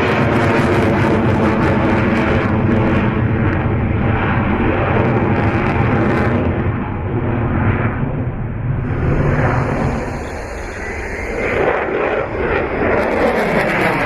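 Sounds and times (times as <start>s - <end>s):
aircraft engine drone: 0.0s - 14.0s.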